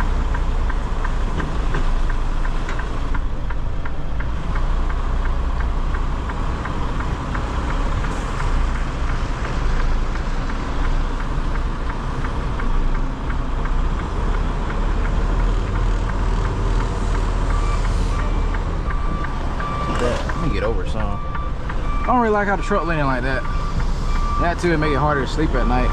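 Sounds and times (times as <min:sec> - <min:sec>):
diesel truck engine running: 0:00.0 - 0:25.9
fast even ticking: 0:00.0 - 0:25.9
high beeping tone: 0:17.3 - 0:25.9.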